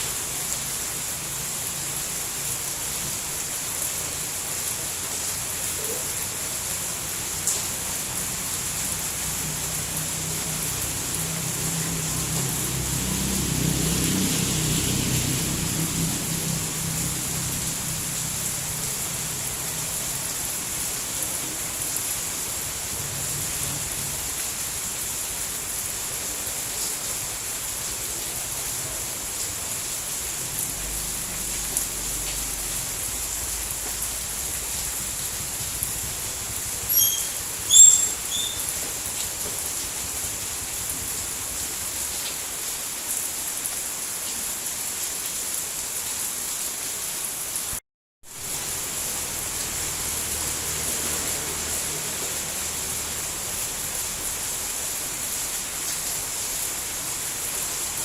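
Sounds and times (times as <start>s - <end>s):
steady rain falling: 0.0s - 58.0s
short high chirps: 36.9s - 38.7s.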